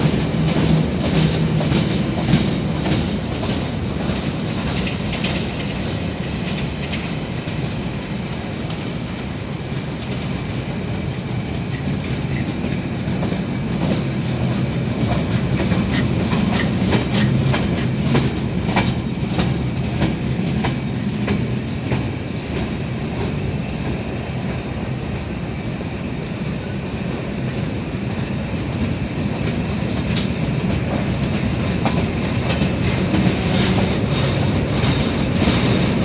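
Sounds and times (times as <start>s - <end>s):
freight train rumbling: 0.0s - 36.0s
wheels clacking over rail joints: 11.7s - 25.2s, 27.4s - 36.0s.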